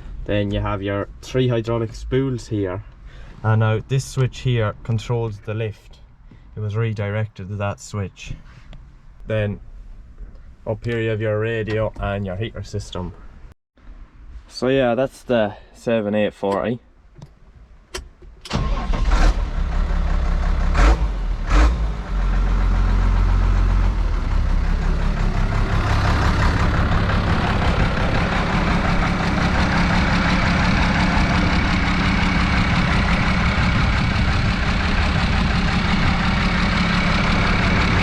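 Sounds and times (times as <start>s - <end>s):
diesel engine starting and idling: 18.4s - 38.0s.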